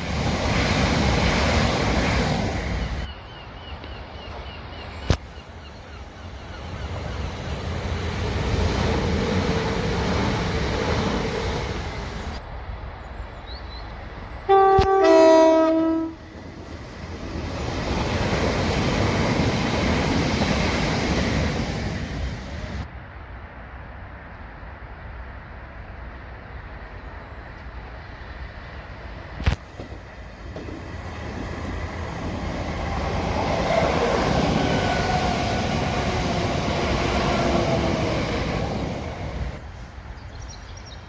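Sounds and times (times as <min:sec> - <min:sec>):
passenger trains rushing past: 0:00.0 - 0:41.0
two-note train horn: 0:14.4 - 0:16.2.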